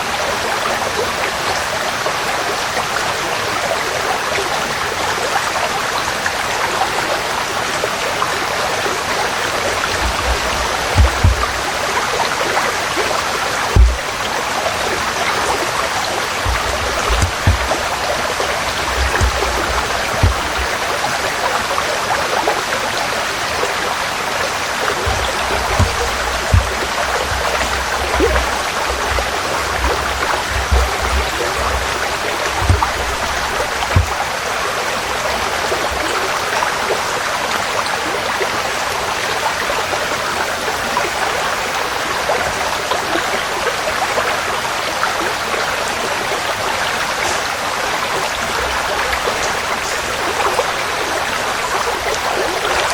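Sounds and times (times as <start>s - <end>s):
stream flowing over stones: 0.0s - 52.9s
brief low thumps: 9.9s - 11.8s, 13.7s - 14.2s, 16.4s - 20.8s, 25.0s - 34.2s.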